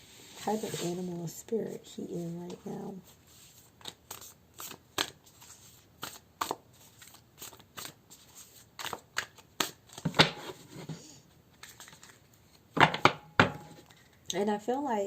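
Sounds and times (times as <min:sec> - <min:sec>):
cards being shuffled: 0:02.6 - 0:10.8, 0:11.5 - 0:12.6.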